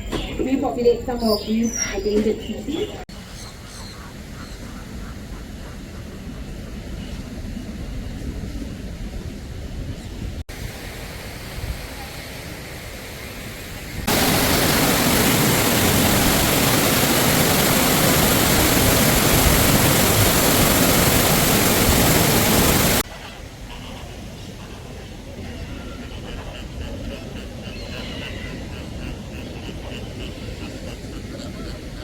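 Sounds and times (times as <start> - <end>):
loud steady rushing noise: 10.5 - 23.0.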